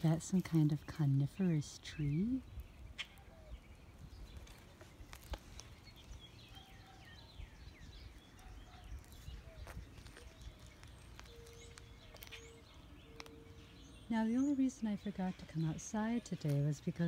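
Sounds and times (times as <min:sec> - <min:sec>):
songbird chirps: 0:00.0 - 0:17.0
low wind rumble: 0:01.1 - 0:16.1
footsteps on pavement: 0:07.9 - 0:13.6.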